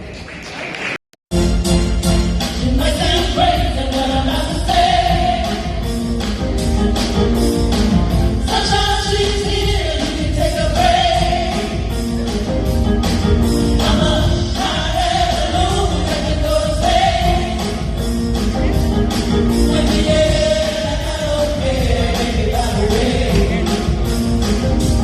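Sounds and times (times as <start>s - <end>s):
instrumental backing: 1.3s - 25.0s
gospel singing: 2.6s - 6.3s, 8.2s - 12.5s, 13.5s - 25.0s.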